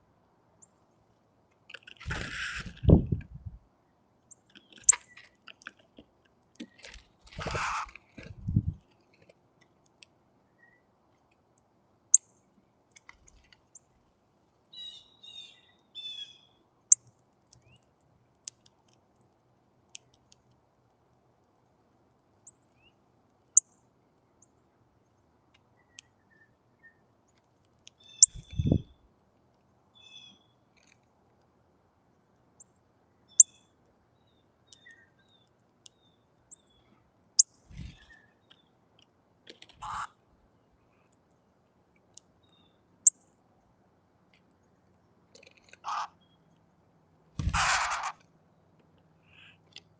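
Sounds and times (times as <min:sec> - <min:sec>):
young bird harsh calls: 0:07.4 - 0:08.0, 0:39.8 - 0:40.1, 0:45.8 - 0:46.2, 0:47.4 - 0:48.2
baby bird chirping: 0:28.0 - 0:28.8.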